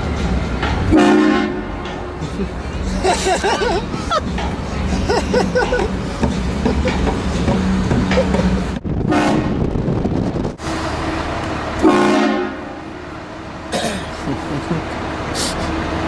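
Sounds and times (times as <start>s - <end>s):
vehicle low rumble: 0.0s - 16.0s
train horn blasting: 0.9s - 2.0s, 9.1s - 9.6s, 11.8s - 13.0s.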